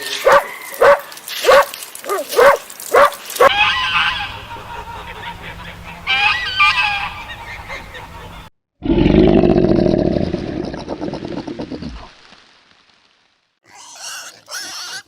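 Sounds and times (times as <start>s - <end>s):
waterfowl honking: 2.4s - 8.5s.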